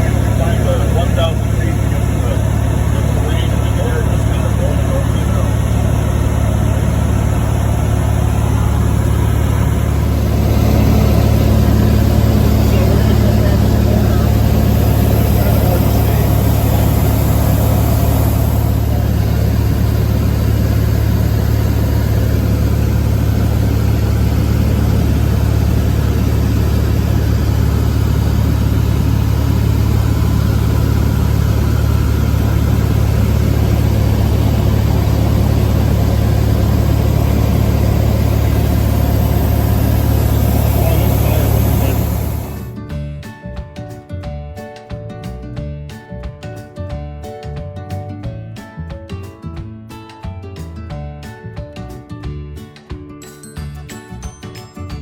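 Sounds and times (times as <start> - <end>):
airplane engine droning: 0.0 - 42.8.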